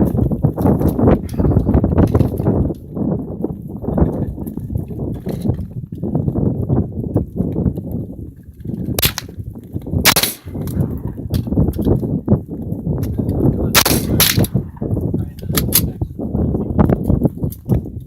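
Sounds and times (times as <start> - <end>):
steady low rumble: 0.0 - 18.0
rifle firing single shots: 9.0 - 9.3, 10.0 - 11.6, 13.7 - 14.9.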